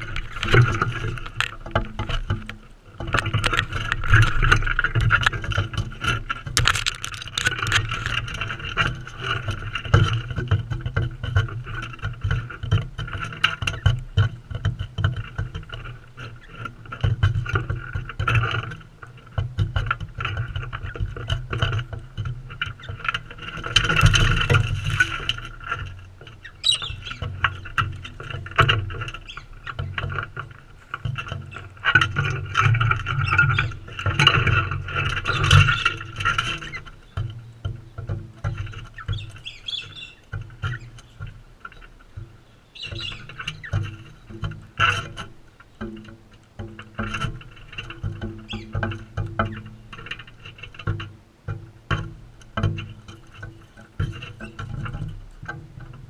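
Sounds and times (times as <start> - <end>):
steady rumble: 0.0 - 13.2
beaks tapping and scraping seed: 0.0 - 56.0.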